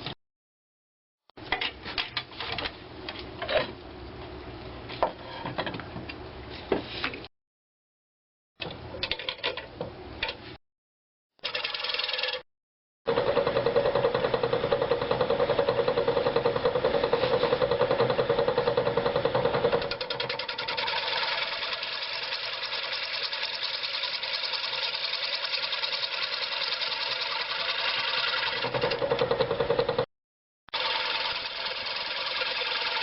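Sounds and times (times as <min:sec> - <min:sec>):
wood lathe tool chattering: 0:11.4 - 0:12.4, 0:13.1 - 0:30.0, 0:30.7 - 0:33.0.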